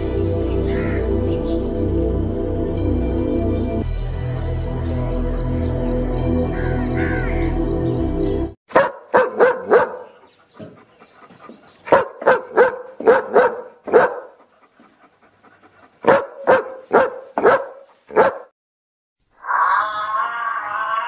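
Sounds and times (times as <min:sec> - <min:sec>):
dog barking: 0:08.7 - 0:10.2, 0:11.9 - 0:14.4, 0:16.0 - 0:18.5.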